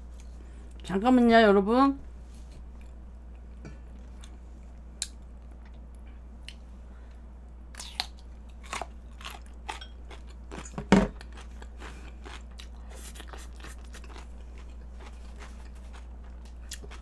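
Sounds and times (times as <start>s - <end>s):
crunchy chewing: 7.8s - 17.0s.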